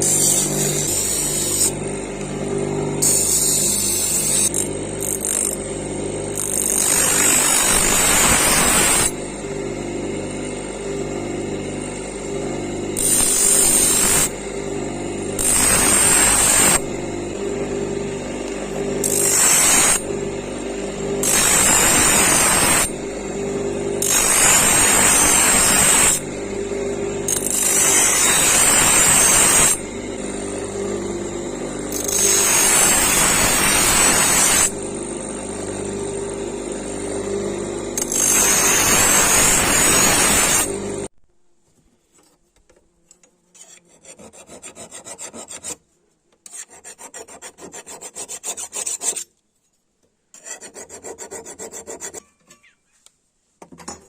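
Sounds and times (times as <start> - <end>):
blade grinding against grinder: 0.0 - 9.3, 11.1 - 41.1, 43.5 - 45.8, 46.4 - 49.3, 50.4 - 52.2
power grinder running: 0.0 - 41.1
rasping filing strokes: 43.5 - 49.3, 50.3 - 52.3.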